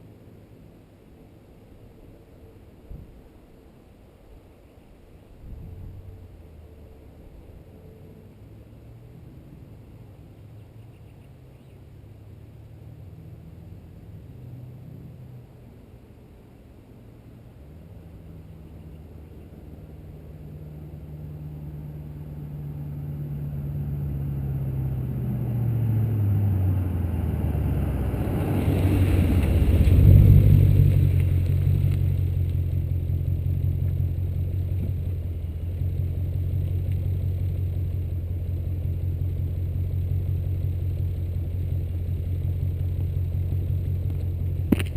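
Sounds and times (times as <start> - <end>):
car engine approaching: 5.6 - 44.9
engine idle rumble: 28.6 - 44.9.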